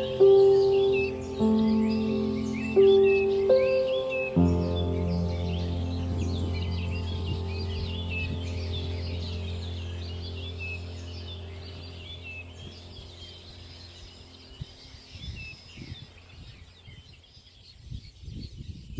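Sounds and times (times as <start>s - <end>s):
flock of birds chattering: 0.0s - 16.1s
steady low hum: 0.0s - 16.4s.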